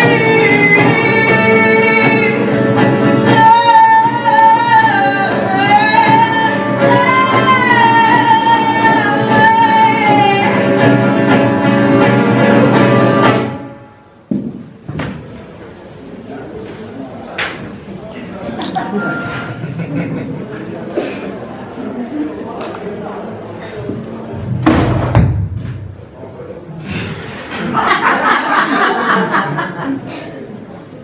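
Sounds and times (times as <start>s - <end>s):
plucked guitar: 0.0s - 14.0s.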